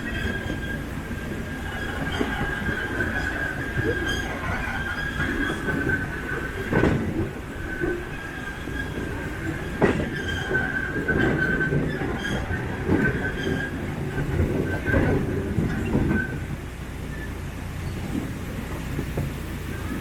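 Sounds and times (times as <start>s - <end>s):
ride-on train rumbling: 0.0s - 20.0s
wheels clacking over rail joints: 0.0s - 20.0s
wheels squealing: 0.0s - 20.0s.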